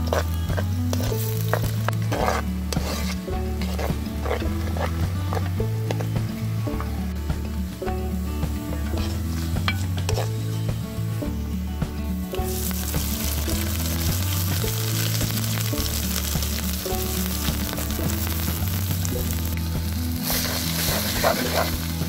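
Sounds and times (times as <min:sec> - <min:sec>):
wooden spoon stirring: 0:00.0 - 0:06.2, 0:08.7 - 0:10.5, 0:12.4 - 0:22.0
low background music: 0:00.0 - 0:22.0
food frying in oil sizzle: 0:12.4 - 0:22.0.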